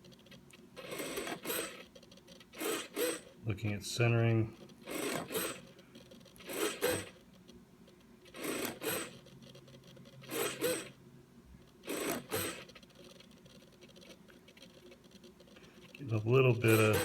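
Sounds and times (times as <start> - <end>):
servo whirring through gears: 0.8 - 3.3, 4.8 - 7.2, 8.3 - 11.0, 11.8 - 14.9, 16.1 - 17.0.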